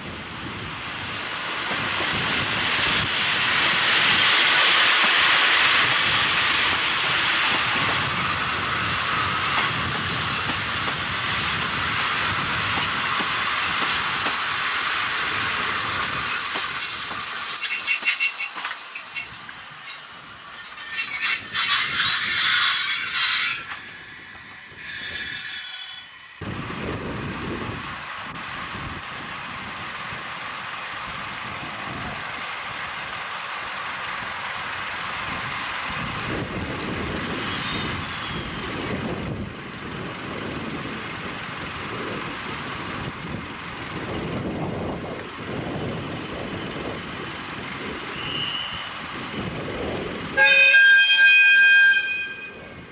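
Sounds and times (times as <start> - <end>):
train running on rails: 0.0 - 52.9
high-pitched wheel squeal: 15.2 - 26.4, 37.3 - 38.9, 48.1 - 49.0, 50.4 - 52.7.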